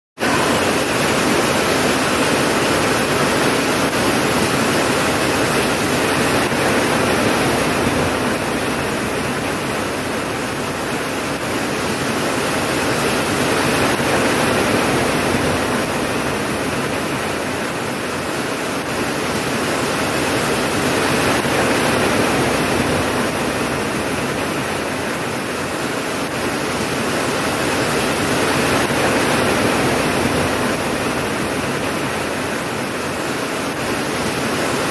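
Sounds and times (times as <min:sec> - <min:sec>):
steady rain: 0:00.2 - 0:34.9.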